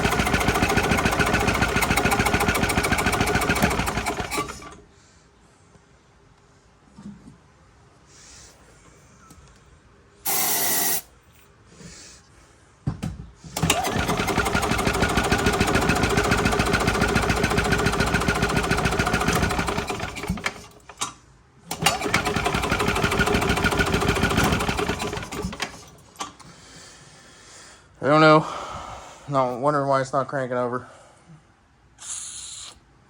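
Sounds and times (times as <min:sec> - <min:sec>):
engine cranking by starter: 0:00.0 - 0:04.9, 0:13.5 - 0:21.1, 0:21.7 - 0:26.5
aerosol spray hiss: 0:32.0 - 0:32.8.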